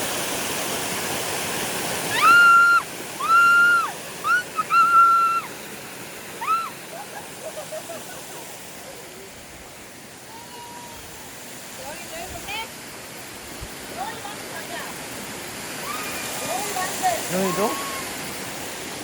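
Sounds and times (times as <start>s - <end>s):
water rushing over rocks: 0.0s - 19.0s
short high swooping calls: 2.1s - 5.6s.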